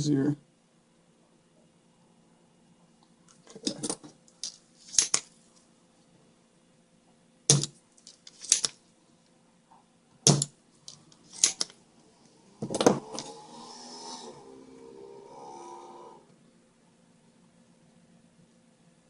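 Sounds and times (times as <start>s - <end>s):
tools set down on workbench: 7.5s - 7.8s.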